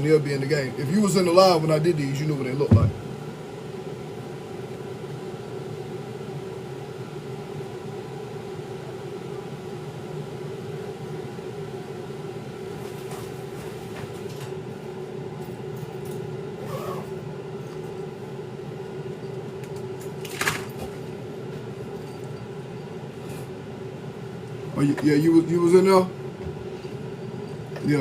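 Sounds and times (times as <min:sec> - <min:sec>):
steady mechanical hum: 0:00.0 - 0:28.0
short sharp knock: 0:02.7 - 0:03.0.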